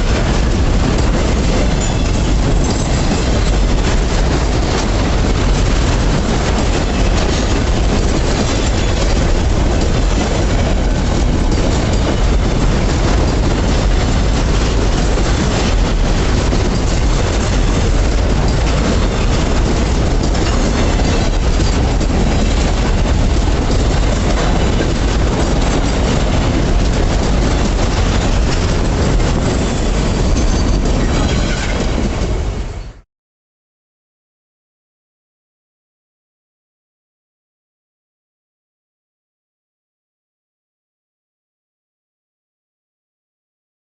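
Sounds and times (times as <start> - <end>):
freight train rumbling: 0.0 - 33.0
wheels clattering on rails: 0.0 - 33.0.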